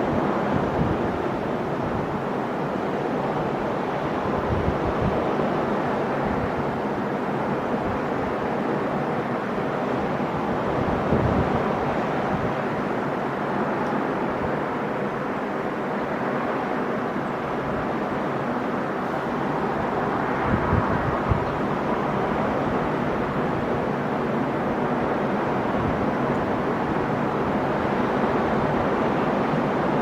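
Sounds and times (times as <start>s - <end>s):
wind buffeting microphone: 0.0s - 2.2s, 4.1s - 8.6s, 10.2s - 13.1s, 19.0s - 24.0s
ocean surf washing ashore: 0.0s - 30.0s.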